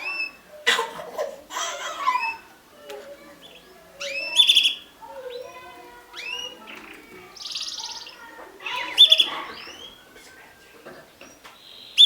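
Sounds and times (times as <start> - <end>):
canaries chirping and singing: 3.2 - 12.0.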